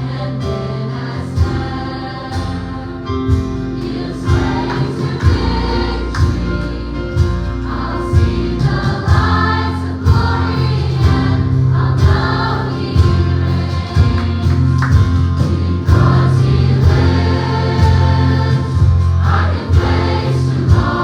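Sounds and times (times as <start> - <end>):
bass notes: 0.0 - 21.0
gospel choir singing: 0.0 - 21.0
drum beat: 4.3 - 11.4, 12.0 - 21.0.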